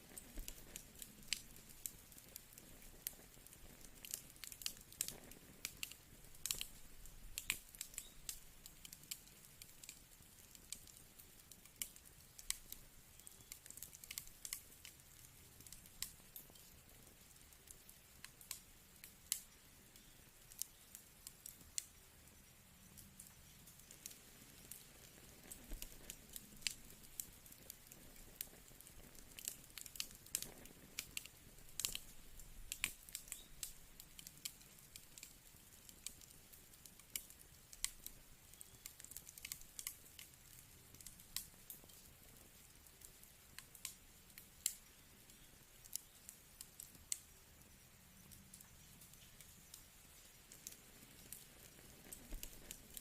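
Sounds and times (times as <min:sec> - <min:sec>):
fireplace fire crackling: 0:00.0 - 0:53.0.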